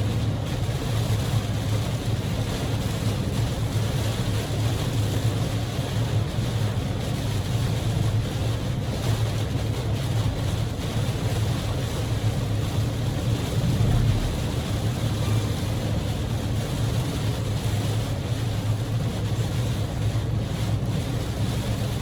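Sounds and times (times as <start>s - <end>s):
low road and engine drone: 0.0s - 22.0s
rain beating on car: 0.0s - 22.0s
tyres hissing on wet road: 0.0s - 22.0s.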